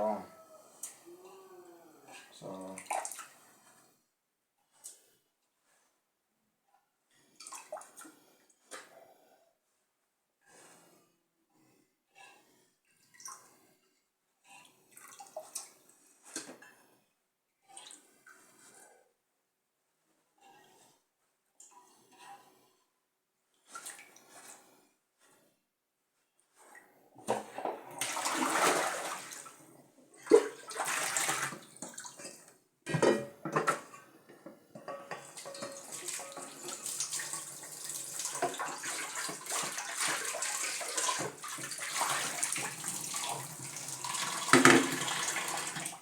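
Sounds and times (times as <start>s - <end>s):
tap water running and splashing: 27.6s - 29.6s, 30.3s - 32.4s, 34.8s - 46.0s.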